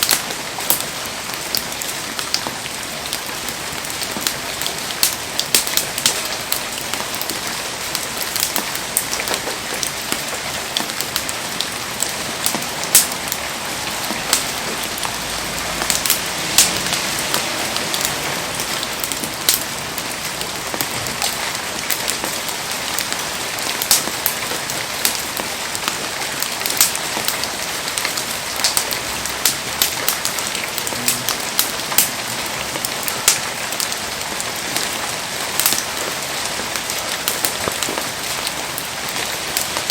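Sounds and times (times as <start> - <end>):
heavy rain falling: 0.0 - 39.9
sharp pops and ticks: 12.0 - 13.4, 23.8 - 25.2, 28.0 - 32.1.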